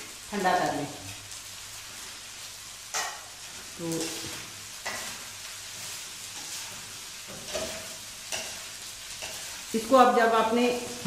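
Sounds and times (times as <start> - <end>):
food sizzling in a wok: 0.0 - 11.0
wooden spatula scraping and knocking: 5.8 - 8.6.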